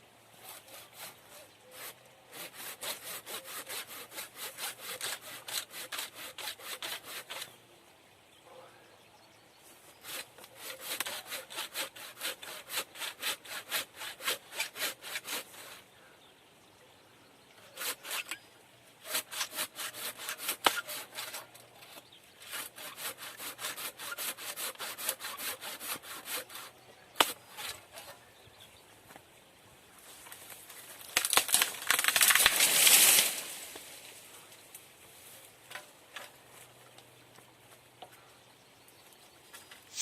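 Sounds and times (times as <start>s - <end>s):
hand saw cutting wood: 0.4s - 7.5s, 10.0s - 15.8s, 17.6s - 18.4s, 19.0s - 28.2s.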